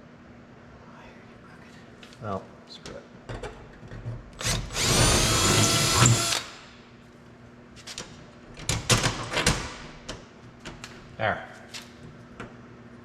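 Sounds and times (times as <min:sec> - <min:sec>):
power drill drilling sheet metal: 0:04.4 - 0:06.5.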